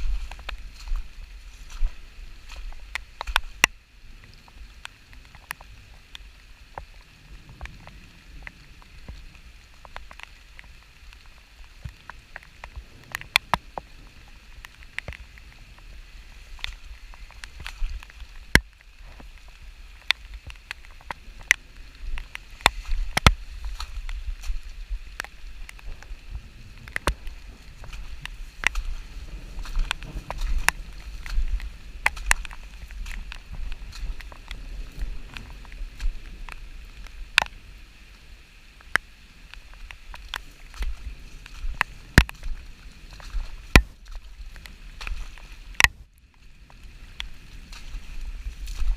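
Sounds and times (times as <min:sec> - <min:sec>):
raindrops tapping: 0:00.0 - 0:48.9
wind buffeting microphone: 0:20.4 - 0:37.8.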